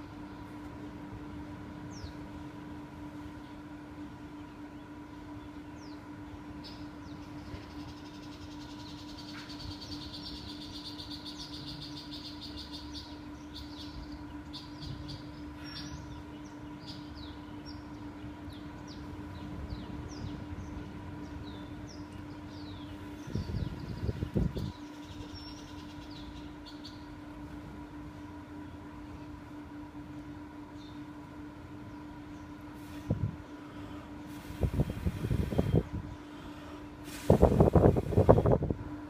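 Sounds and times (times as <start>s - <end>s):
low hum: 0.0s - 39.0s
birds chirping: 4.3s - 27.3s.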